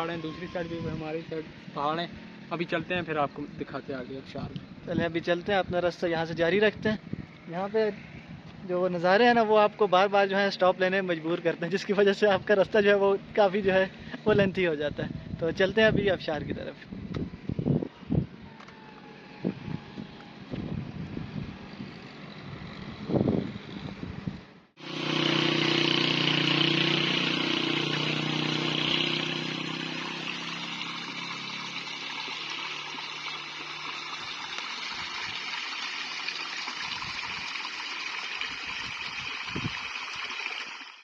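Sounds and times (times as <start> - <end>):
stream water flowing: 24.8 - 41.0
car noise: 27.0 - 34.7.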